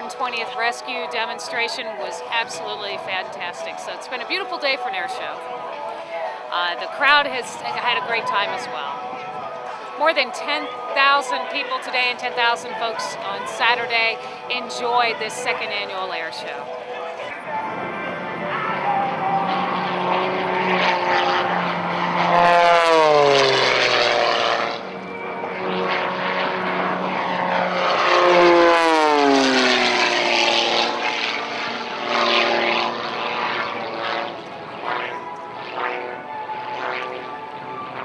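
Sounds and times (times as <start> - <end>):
propeller airplane passing low: 0.0 - 38.0.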